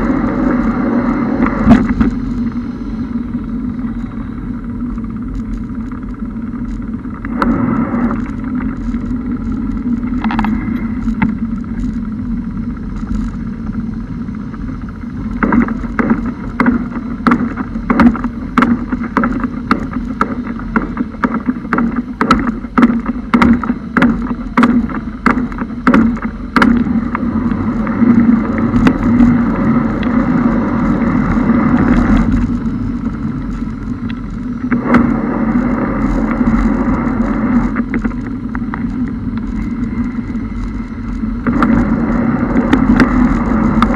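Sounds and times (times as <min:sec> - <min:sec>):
car engine and road hum: 0:00.0 - 0:43.9
water washing against car: 0:00.0 - 0:43.9
rush of water: 0:14.1 - 0:43.9
sharp irregular taps: 0:15.4 - 0:29.3.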